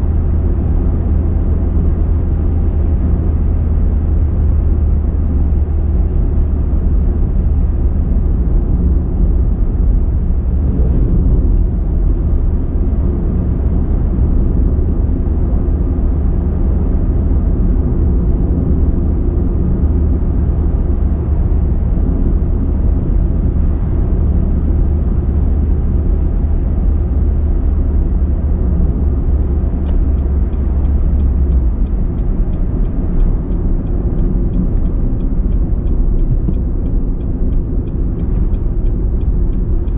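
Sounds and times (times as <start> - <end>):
car engine and road rumble: 0.0 - 39.9
faint ticks: 29.8 - 39.9.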